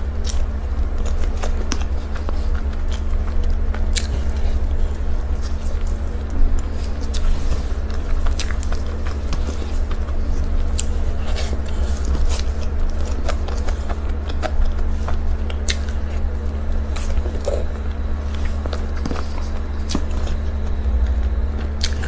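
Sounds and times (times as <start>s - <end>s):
person chewing food: 0.0s - 22.0s
steady low hum: 0.0s - 22.0s
mouth clicks and smacks: 12.0s - 16.0s.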